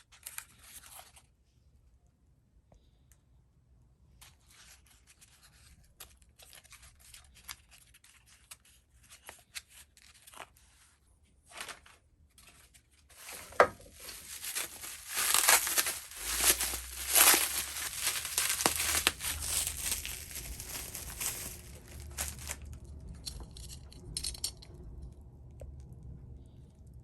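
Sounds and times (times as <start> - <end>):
rustling and crinkling: 4.2 - 24.6.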